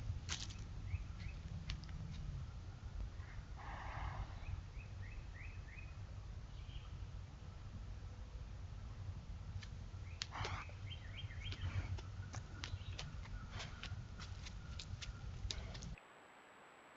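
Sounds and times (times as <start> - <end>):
steady low rumble: 0.0 - 16.0
small bird chirping: 10.0 - 15.9.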